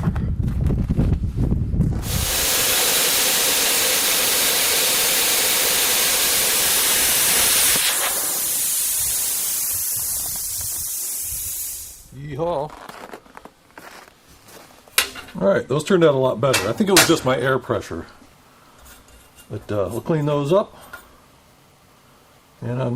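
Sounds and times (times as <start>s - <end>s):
plasma cutter hissing: 2.0s - 12.1s.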